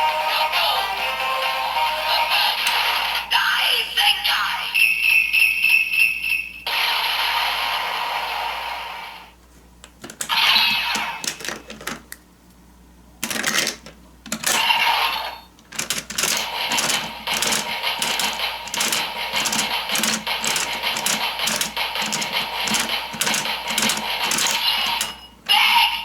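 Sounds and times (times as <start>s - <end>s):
plastic toy gear ratcheting clicks: 10.0s - 12.0s, 13.2s - 14.8s, 15.6s - 25.3s.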